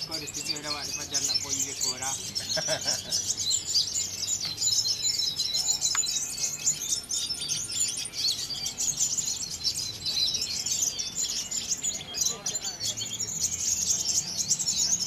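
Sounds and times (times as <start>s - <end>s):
many birds chirping and trilling: 0.0s - 15.0s.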